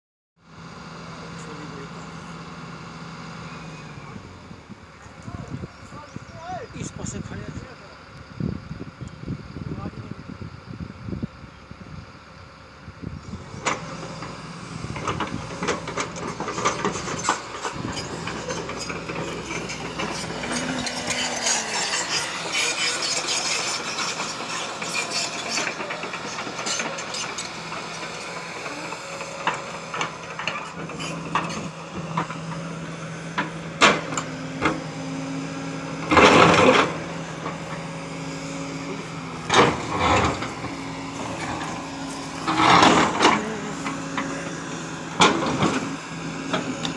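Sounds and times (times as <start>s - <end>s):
diesel engine running: 0.4s - 46.9s
bucket scraping stone and earth: 35.8s - 46.9s.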